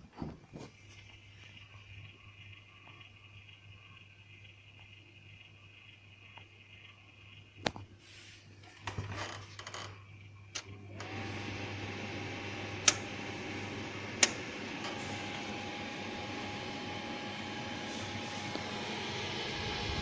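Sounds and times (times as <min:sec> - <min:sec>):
clicks: 0:12.8 - 0:13.2, 0:14.1 - 0:15.5.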